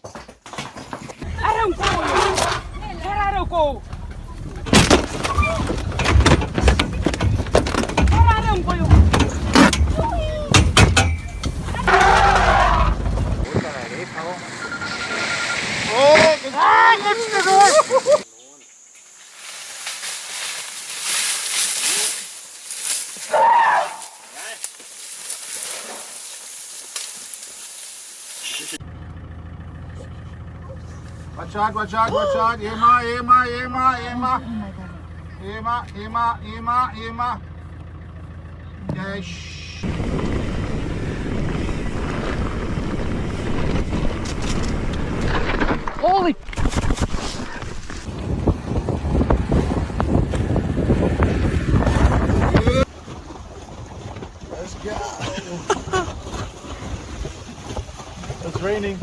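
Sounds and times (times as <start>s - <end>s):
wind buffeting microphone: 39.8s - 45.5s, 46.6s - 59.0s.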